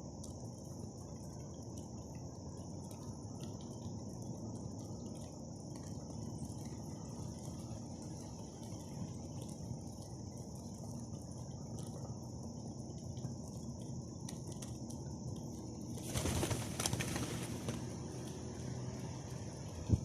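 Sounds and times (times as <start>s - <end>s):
steady background hum: 0.0s - 20.0s
birds: 15.4s - 19.1s
wings flapping: 15.9s - 18.7s.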